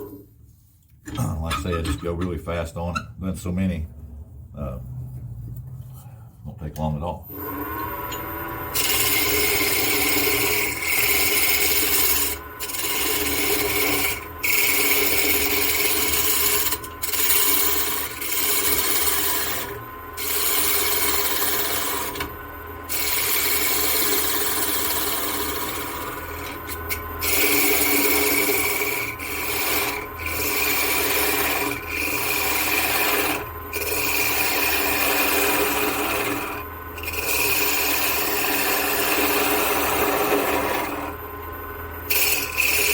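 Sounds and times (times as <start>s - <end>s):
lathe humming: 7.3s - 42.9s
gouge shaving wood on lathe: 8.7s - 22.3s, 22.9s - 41.2s, 42.1s - 42.9s.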